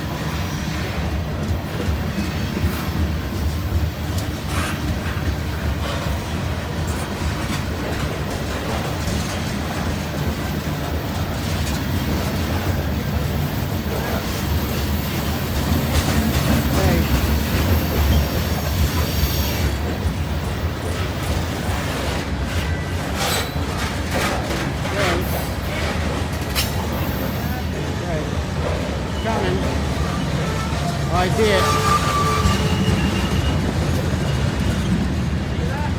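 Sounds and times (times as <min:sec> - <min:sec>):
freight train rumbling past: 0:00.0 - 0:35.9
wheel clacks over rail joints: 0:00.8 - 0:19.1, 0:19.8 - 0:27.5.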